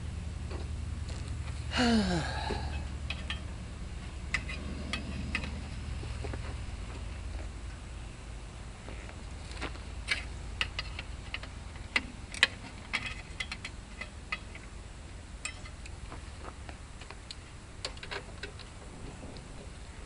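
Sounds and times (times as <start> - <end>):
tools tapping on metal: 2.6 - 3.5.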